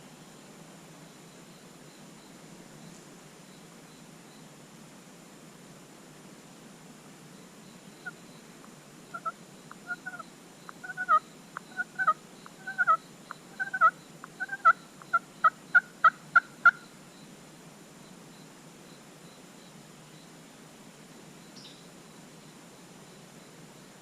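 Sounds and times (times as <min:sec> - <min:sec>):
turkey yelping: 0:09.1 - 0:10.2, 0:10.8 - 0:13.0, 0:13.6 - 0:16.8.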